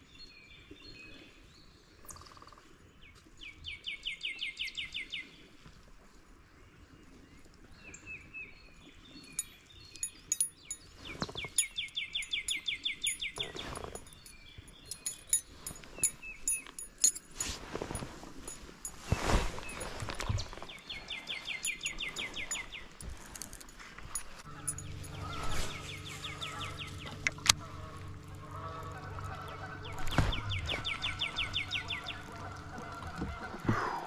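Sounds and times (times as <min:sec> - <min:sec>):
songbird trilling: 0:09.4 - 0:16.8, 0:21.1 - 0:22.9.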